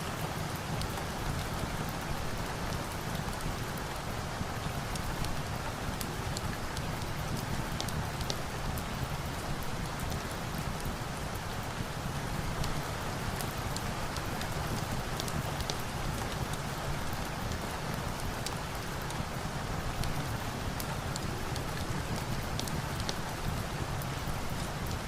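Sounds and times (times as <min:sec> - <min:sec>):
rain: 0:00.0 - 0:25.0.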